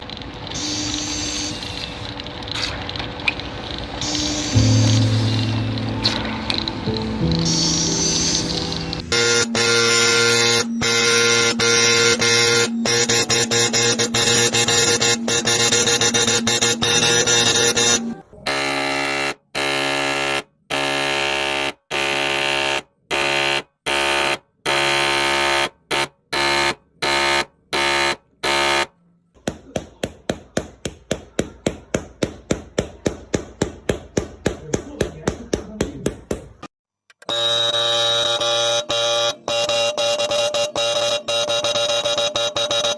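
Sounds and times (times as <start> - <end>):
pulsing buzzer tone: 4.0 - 5.8, 7.3 - 28.9, 37.2 - 42.9.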